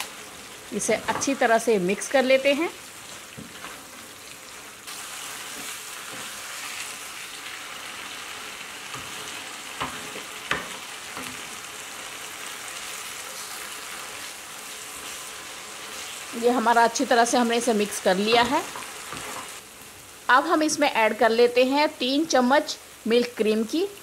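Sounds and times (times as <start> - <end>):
curry sizzling in a pan: 0.0 - 24.0
spatula stirring in a pan: 2.8 - 16.4, 18.1 - 19.6.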